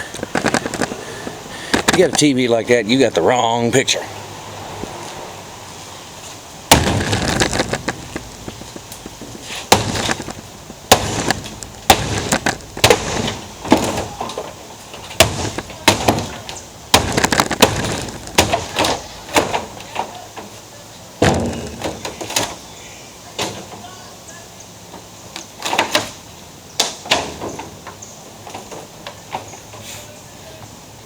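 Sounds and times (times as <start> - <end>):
glass and plastic cracking: 0.1 - 1.0, 6.7 - 20.2, 21.2 - 22.6
sledgehammer smashing television: 6.7 - 20.0.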